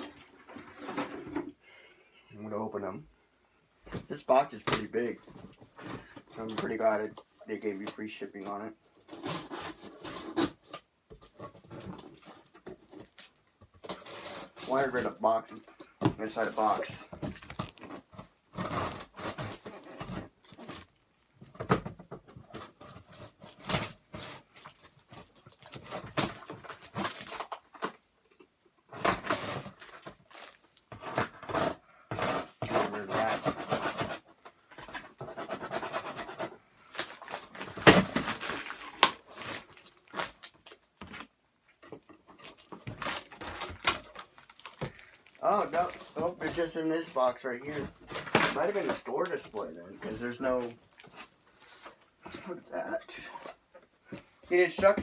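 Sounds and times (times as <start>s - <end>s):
cardboard scraping and rustling: 0.0s - 1.5s, 3.9s - 28.0s, 28.9s - 55.0s.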